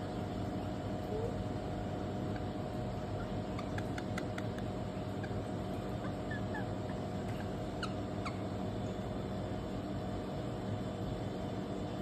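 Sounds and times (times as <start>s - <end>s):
steady background hum: 0.0s - 12.0s
faint bird chirps: 5.0s - 9.1s.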